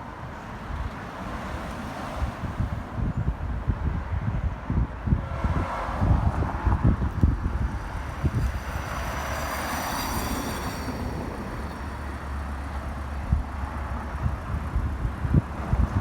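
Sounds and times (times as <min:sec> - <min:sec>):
wind rumbling on microphone: 0:00.0 - 0:16.0
vehicle passing by: 0:05.4 - 0:16.0.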